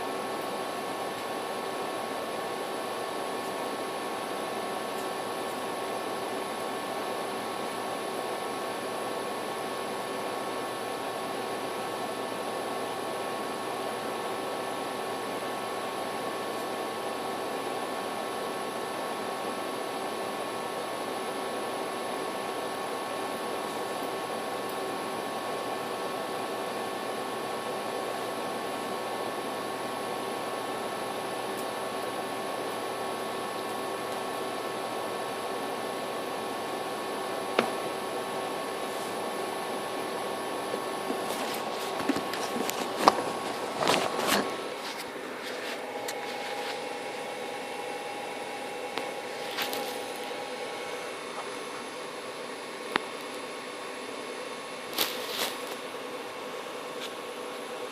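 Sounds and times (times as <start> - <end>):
mechanical hum and hiss: 0.0 - 57.9.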